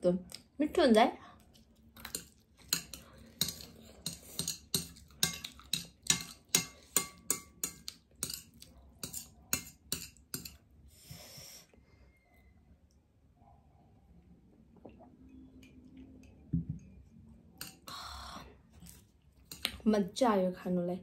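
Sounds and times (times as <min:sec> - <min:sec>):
person chewing noodles: 0:01.4 - 0:07.0.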